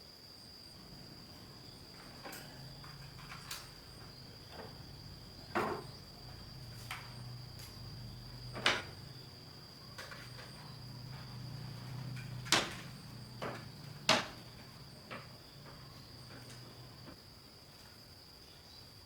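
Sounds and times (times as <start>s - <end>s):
high insect drone: 0.0s - 19.0s
sharp knocks: 5.4s - 7.5s, 11.8s - 15.8s.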